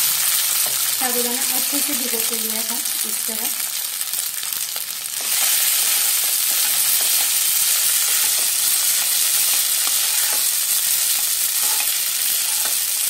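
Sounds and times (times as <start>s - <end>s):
sizzling in hot oil: 0.0s - 13.0s
spatula scraping pan: 5.2s - 13.0s.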